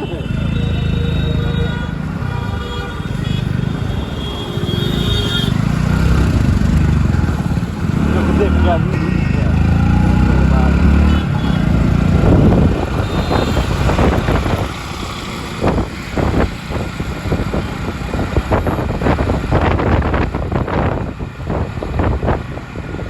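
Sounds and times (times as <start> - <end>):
road traffic: 0.0 - 23.0
vehicle engine: 0.0 - 23.0
wind buffeting microphone: 11.8 - 23.0.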